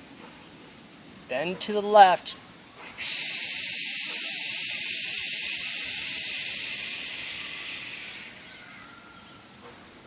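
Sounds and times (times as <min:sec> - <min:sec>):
person exhaling a breathy shhh: 0:02.9 - 0:08.4.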